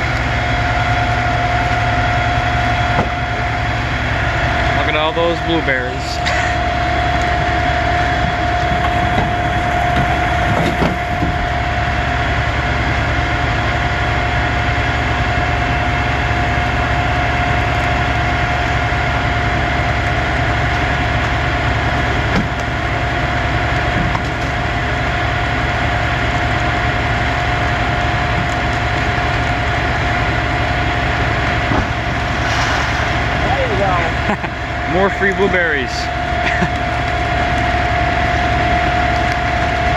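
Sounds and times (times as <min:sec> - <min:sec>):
vehicle engine idling: 0:00.0 - 0:39.9
high whine: 0:31.2 - 0:36.4.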